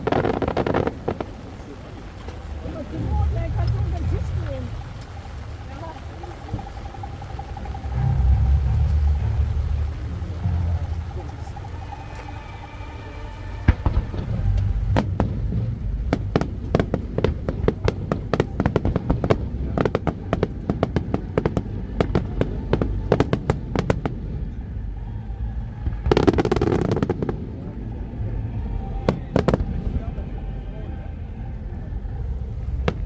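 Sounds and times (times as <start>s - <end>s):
fireworks cracking and banging: 0.0s - 12.6s, 13.3s - 24.6s, 25.8s - 27.7s, 28.8s - 30.2s, 32.8s - 33.0s.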